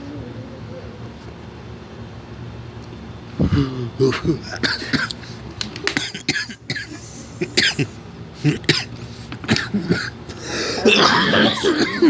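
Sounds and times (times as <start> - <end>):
person clearing throat: 3.4 - 5.2, 6.0 - 12.0
person coughing: 3.5 - 5.2, 6.0 - 8.9, 9.5 - 12.0.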